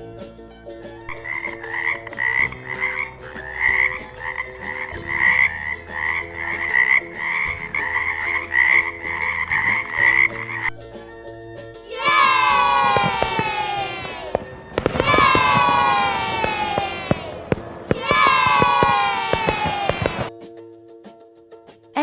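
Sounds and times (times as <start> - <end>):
frog croaking: 1.1 - 10.7.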